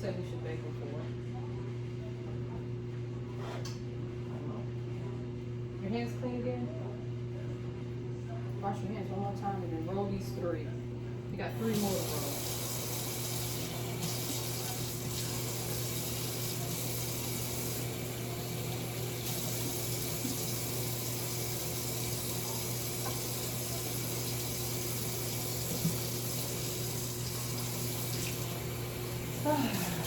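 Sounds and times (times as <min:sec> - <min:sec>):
faucet running into sink: 0:11.6 - 0:30.0
hands washing under water: 0:18.6 - 0:30.0.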